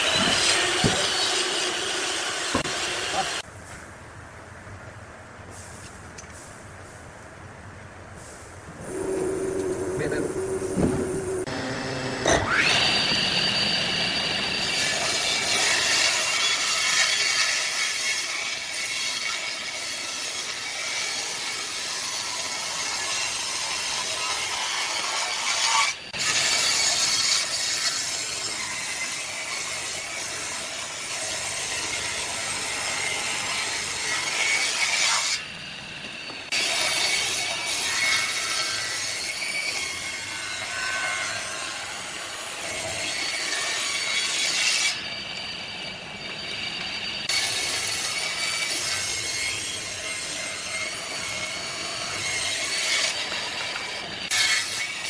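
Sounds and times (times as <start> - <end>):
tool sawing wood: 0.0 - 3.4.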